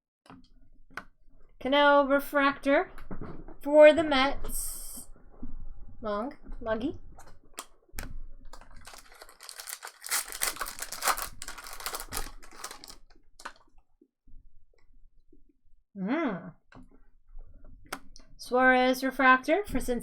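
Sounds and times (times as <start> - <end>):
foil wrappers crinkling and tearing: 8.5 - 13.6
cards being handled: 8.7 - 13.6.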